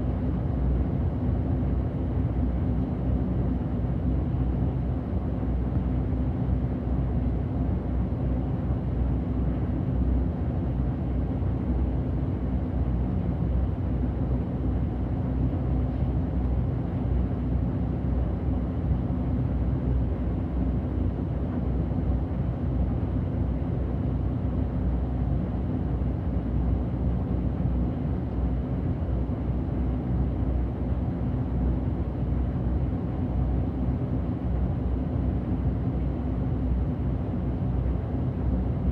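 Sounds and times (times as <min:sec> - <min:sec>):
bus engine and road noise: 0:00.0 - 0:38.9.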